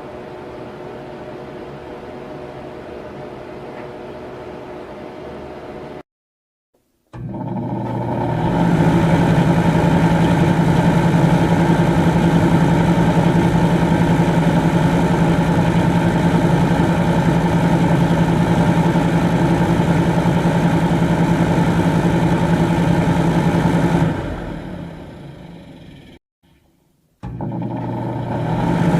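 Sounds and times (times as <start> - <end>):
electric fan running: 7.1 - 26.2, 27.2 - 28.9.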